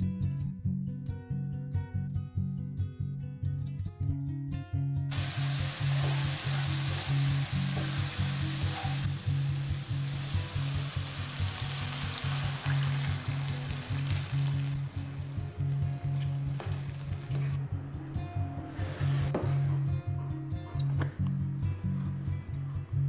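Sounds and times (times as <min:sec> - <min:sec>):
food frying in hot oil: 0:05.1 - 0:17.5
water poured into wok: 0:05.1 - 0:17.5.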